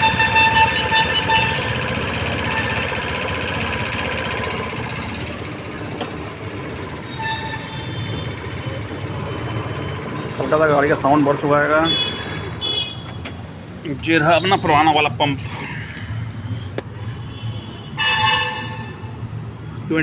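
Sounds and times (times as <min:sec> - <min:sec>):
scooter engine running: 0:00.0 - 0:12.8.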